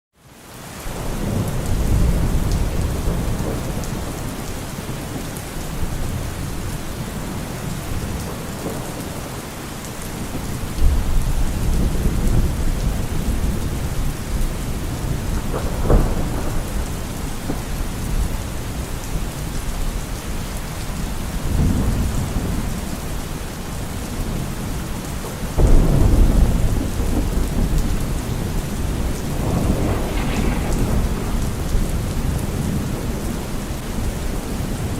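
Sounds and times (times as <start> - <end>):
steady rain: 0.2 - 34.9
rolling thunder: 0.9 - 20.0, 25.6 - 34.9
sharp thunder crack: 14.8 - 18.1, 25.6 - 33.5.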